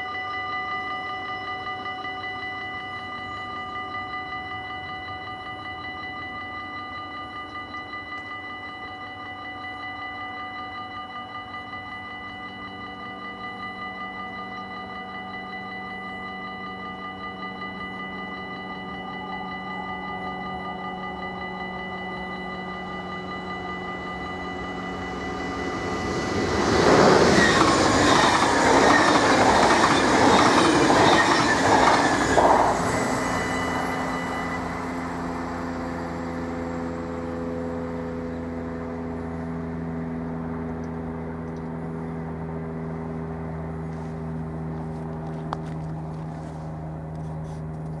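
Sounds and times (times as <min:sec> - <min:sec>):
level-crossing warning bell: 0:00.0 - 0:47.2
train wheels clattering on rails: 0:24.7 - 0:34.8.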